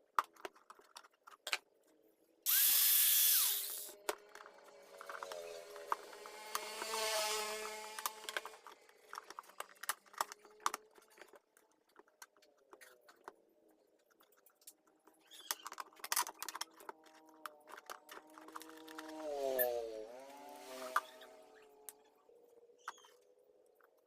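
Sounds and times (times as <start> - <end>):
parts clicking and tapping: 0.0 - 1.9, 3.6 - 7.0, 7.9 - 19.7
rotary tool whining: 2.5 - 9.7, 16.3 - 23.3.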